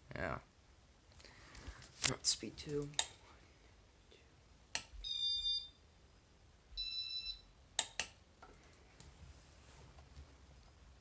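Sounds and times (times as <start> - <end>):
ceiling fan control beeping: 5.0 - 5.8, 6.8 - 8.0
sharp clicks: 7.8 - 8.2.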